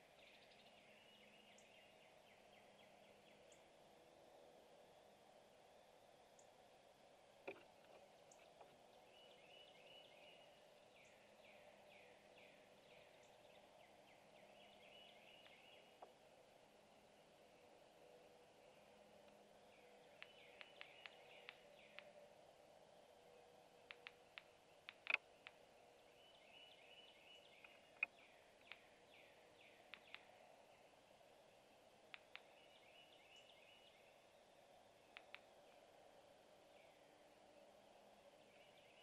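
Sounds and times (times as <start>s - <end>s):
faint wild birdsong: 0.0s - 39.0s.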